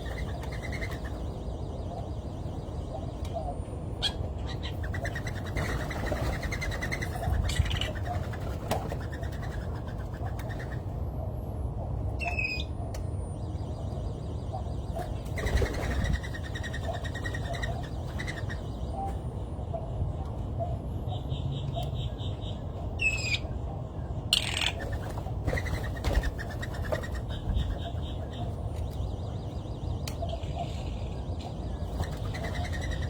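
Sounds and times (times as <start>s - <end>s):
bird trills: 24.4s - 24.9s.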